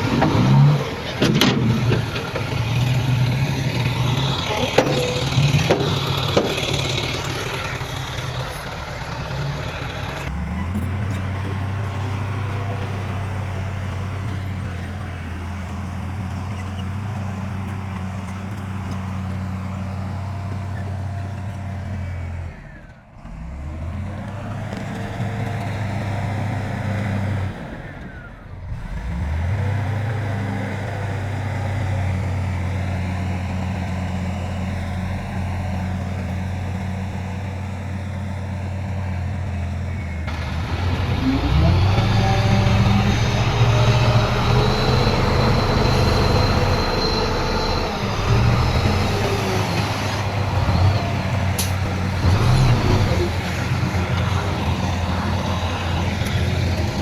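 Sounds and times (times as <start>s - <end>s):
high metallic squealing: 0.0s - 8.6s, 40.0s - 57.0s
diesel machinery engine running: 0.0s - 57.0s.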